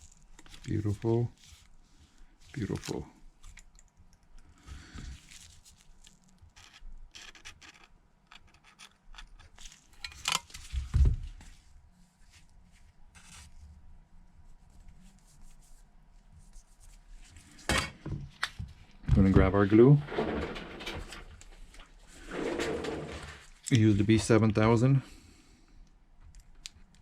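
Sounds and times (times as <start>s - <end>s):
rubbing scraping and clicking: 5.4s - 10.6s, 20.0s - 23.7s.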